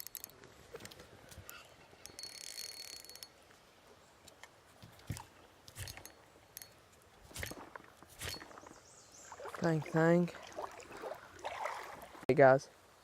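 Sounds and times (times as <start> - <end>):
fishing reel gear clicking: 0.0 - 0.4, 1.4 - 3.4.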